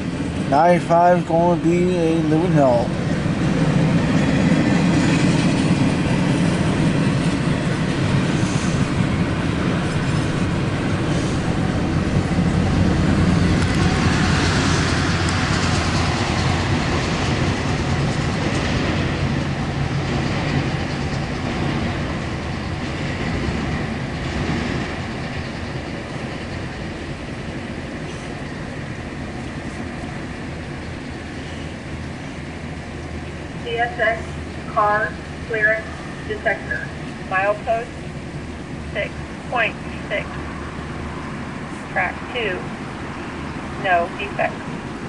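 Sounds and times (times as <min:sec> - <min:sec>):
freight train wheels clattering: 0:02.9 - 0:33.3.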